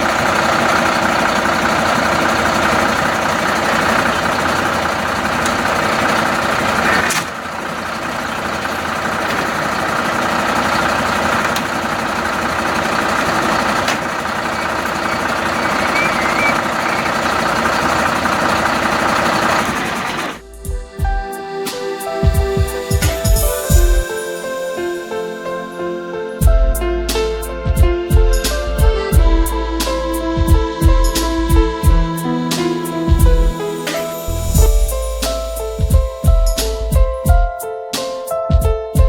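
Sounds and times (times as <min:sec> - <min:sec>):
fire truck engine idling: 0:00.0 - 0:21.9.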